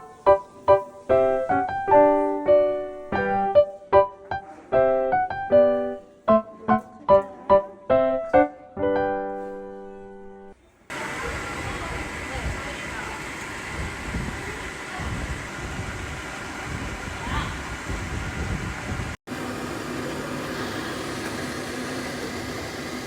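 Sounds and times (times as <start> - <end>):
solo piano melody: 0.0 - 10.6.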